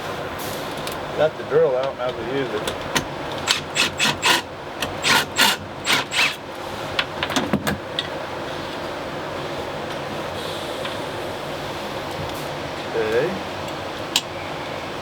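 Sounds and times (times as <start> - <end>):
cordless drill driving screws: 3.4 - 6.4.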